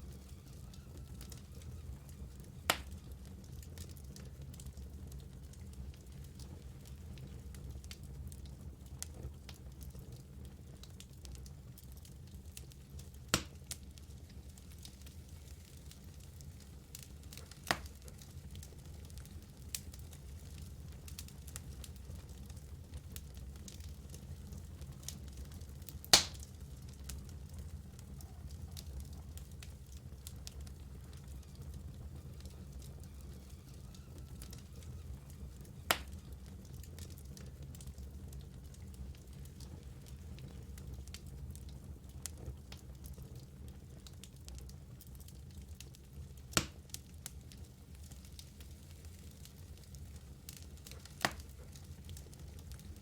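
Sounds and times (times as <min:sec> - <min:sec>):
fire flames rumbling: 0:00.0 - 0:53.0
soft crackles: 0:00.0 - 0:53.0
logs popping: 0:02.7 - 0:03.0, 0:26.1 - 0:26.5, 0:32.4 - 0:36.3
loud pop from fire: 0:02.7 - 0:03.1, 0:13.3 - 0:13.8, 0:17.4 - 0:18.3, 0:26.0 - 0:26.5, 0:35.6 - 0:36.3, 0:46.5 - 0:47.0, 0:50.5 - 0:51.7.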